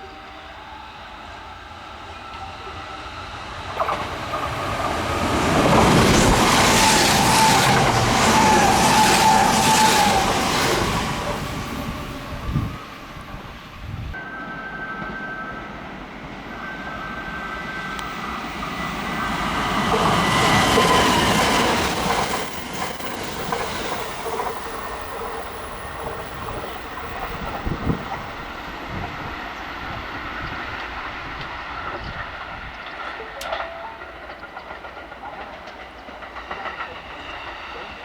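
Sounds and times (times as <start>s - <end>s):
electric train passing: 0.0s - 38.0s
high whine: 13.3s - 28.6s
wheels clacking over rail joints: 17.8s - 38.0s.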